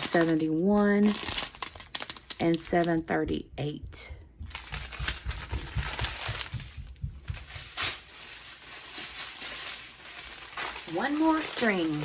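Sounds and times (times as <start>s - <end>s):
plastic bags crinkling: 0.0s - 3.0s, 4.5s - 12.0s.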